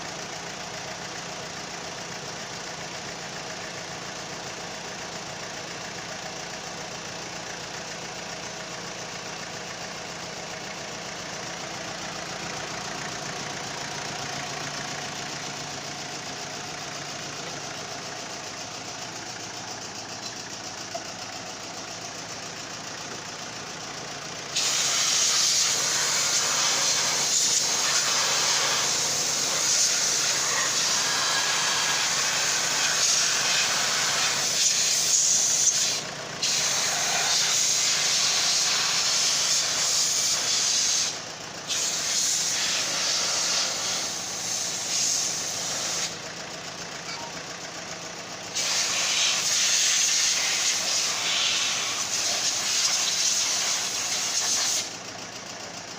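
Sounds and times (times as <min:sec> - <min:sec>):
pressurised jet spraying: 0:24.6 - 0:32.4.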